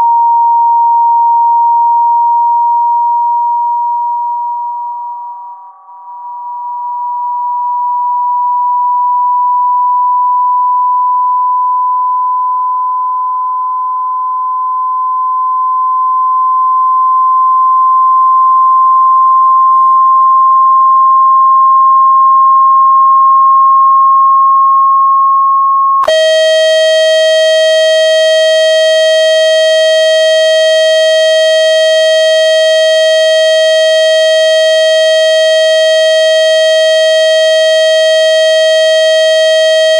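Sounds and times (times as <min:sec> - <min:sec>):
harsh buzzing tone: 0:26.0 - 0:39.9.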